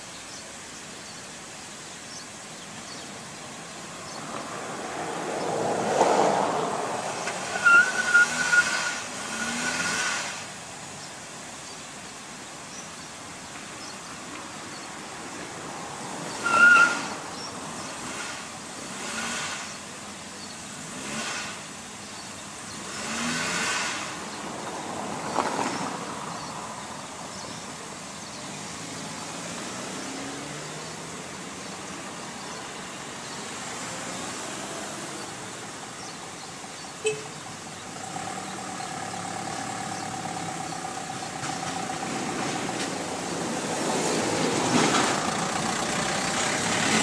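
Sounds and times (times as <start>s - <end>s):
car engine revving: 4.2s - 10.6s, 16.2s - 25.9s, 28.5s - 47.0s.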